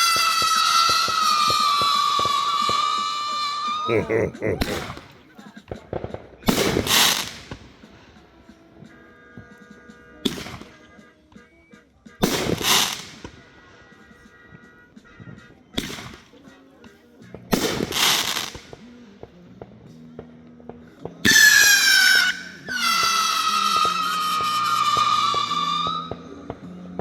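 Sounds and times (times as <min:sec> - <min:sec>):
shrill whistling firework: 0:00.0 - 0:03.9, 0:06.4 - 0:07.7, 0:12.3 - 0:13.4, 0:21.3 - 0:26.4
fireworks banging: 0:00.0 - 0:09.0, 0:12.2 - 0:14.0, 0:14.6 - 0:16.4, 0:17.5 - 0:20.3, 0:21.3 - 0:26.7
noisy firework bursts: 0:00.0 - 0:09.3, 0:10.2 - 0:11.1, 0:12.2 - 0:16.4, 0:17.5 - 0:19.4, 0:21.2 - 0:26.7.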